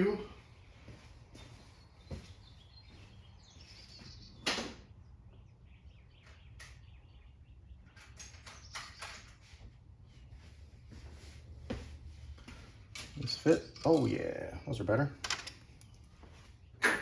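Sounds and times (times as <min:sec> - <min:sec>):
parts clattering: 0:12.5 - 0:16.2.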